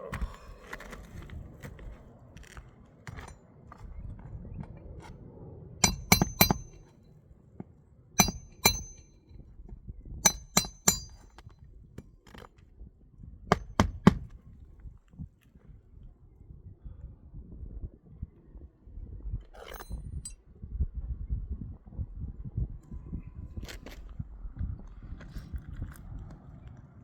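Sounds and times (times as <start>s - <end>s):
hammer striking metal: 5.8s - 6.8s, 8.2s - 9.2s, 10.2s - 11.4s.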